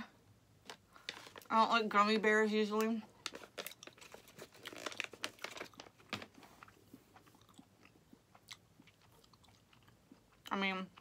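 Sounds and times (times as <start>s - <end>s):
person chewing gummy candy: 3.2s - 11.0s.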